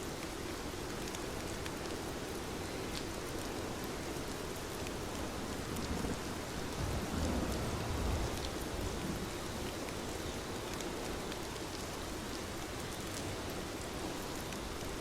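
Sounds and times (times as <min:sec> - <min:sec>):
steady rain falling: 0:00.0 - 0:15.0
low thunder rumble: 0:06.7 - 0:09.3
rain drop ticks: 0:08.3 - 0:14.9.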